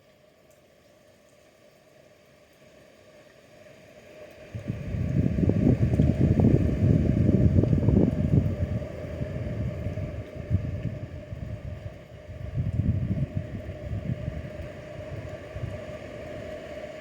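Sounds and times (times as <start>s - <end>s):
wind buffeting microphone: 4.5s - 16.1s.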